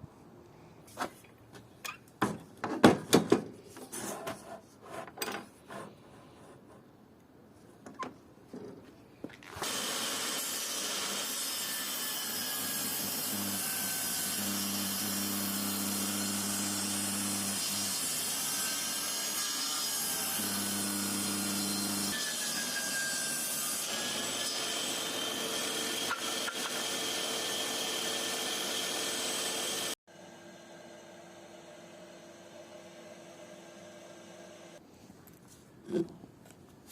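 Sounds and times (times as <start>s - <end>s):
power tool cutting wood: 9.6s - 30.0s.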